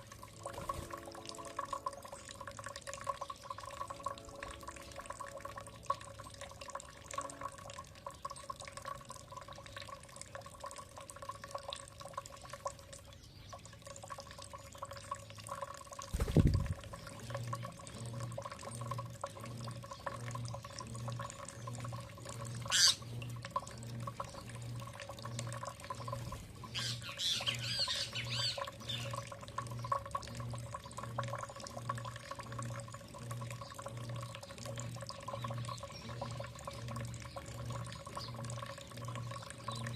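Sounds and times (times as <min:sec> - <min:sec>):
dripping and trickling water: 0:00.0 - 0:39.9
bird warbling song: 0:19.8 - 0:30.0, 0:33.5 - 0:39.9
songbird call: 0:22.7 - 0:23.0, 0:26.7 - 0:29.2.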